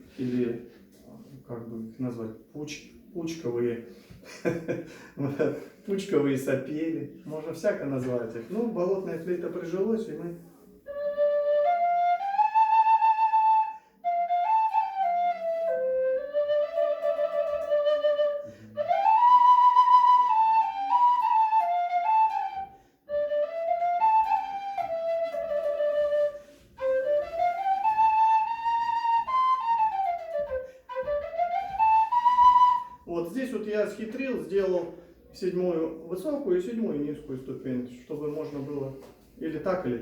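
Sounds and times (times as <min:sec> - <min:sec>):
flute melody: 0:10.7 - 0:34.2
quick breaths: 0:18.4 - 0:18.8.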